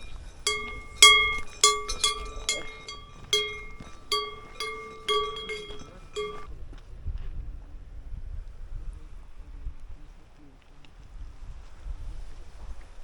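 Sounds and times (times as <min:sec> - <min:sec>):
cowbell clanging: 0:00.5 - 0:06.5.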